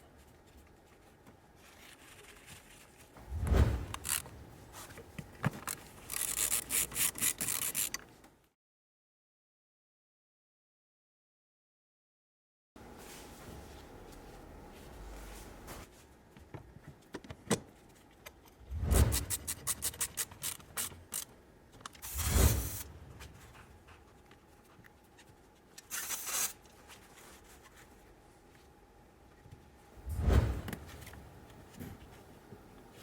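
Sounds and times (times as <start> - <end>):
tools being handled: 3.8 - 8.2.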